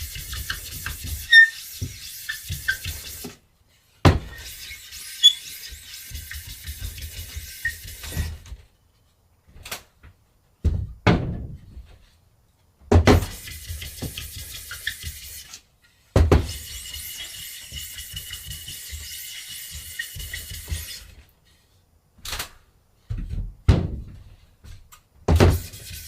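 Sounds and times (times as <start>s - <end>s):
sharp knocks and clunks: 4.0s - 4.4s, 10.6s - 12.0s, 12.8s - 14.2s, 16.1s - 16.5s, 23.1s - 25.7s.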